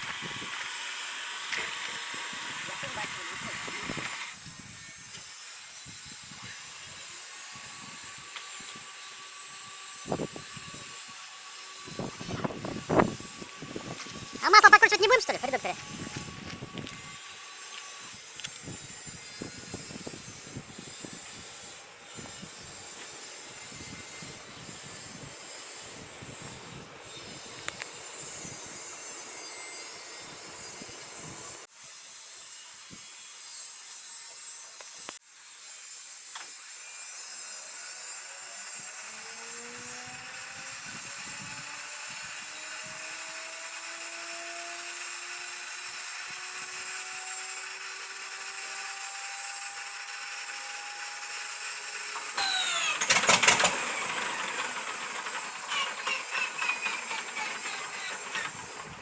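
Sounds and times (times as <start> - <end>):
starter whine rising: 52.0 - 59.0.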